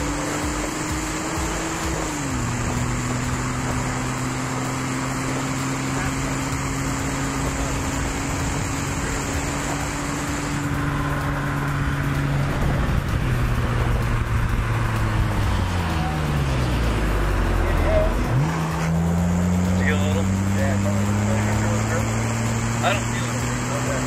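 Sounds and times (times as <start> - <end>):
car engine pulling hard: 0.0 - 24.0
wind and road noise: 0.0 - 24.0.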